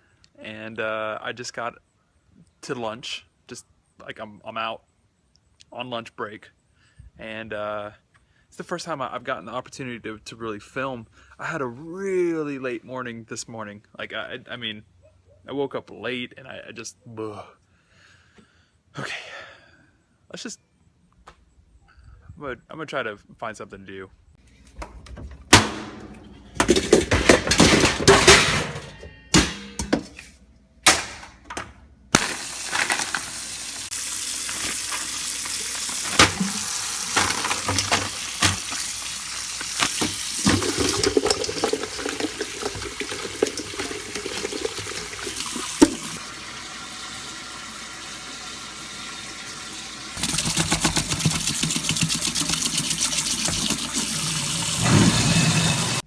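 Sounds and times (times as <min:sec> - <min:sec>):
pots and pans clanking: 0:25.6 - 0:30.1, 0:36.0 - 0:38.8, 0:40.0 - 0:44.5
tap running into sink: 0:50.2 - 0:56.0.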